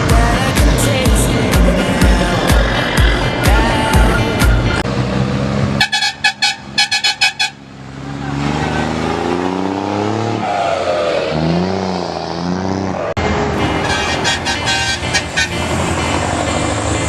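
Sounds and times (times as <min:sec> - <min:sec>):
truck engine revving: 0:00.0 - 0:17.0
truck horn blasts: 0:05.8 - 0:07.7, 0:13.6 - 0:16.1.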